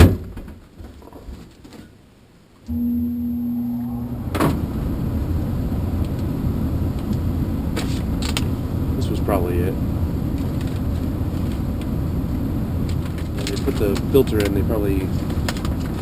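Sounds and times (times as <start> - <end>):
low tone: 2.7 - 6.9
furnace blower motor humming: 2.7 - 16.0.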